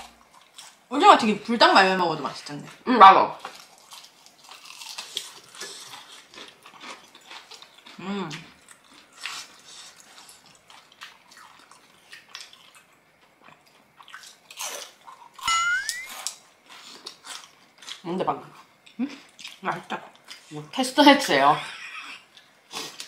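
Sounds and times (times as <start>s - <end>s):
chewing and biting food: 3.5s - 15.4s, 16.1s - 18.0s.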